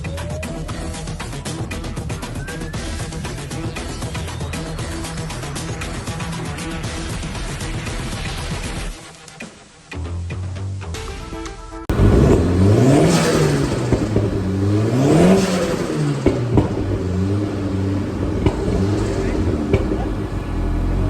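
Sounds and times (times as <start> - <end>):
car engine revving and idling: 11.9 - 21.0.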